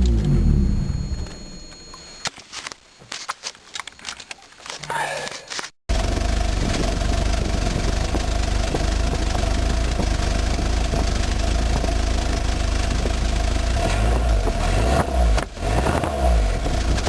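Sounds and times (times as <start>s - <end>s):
car engine idling: 0.0s - 2.0s, 5.9s - 17.0s.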